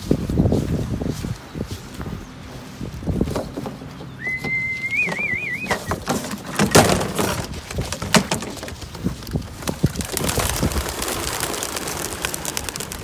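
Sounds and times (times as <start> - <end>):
whistled note: 4.2 - 5.8
pigeon wings flapping: 4.2 - 13.0.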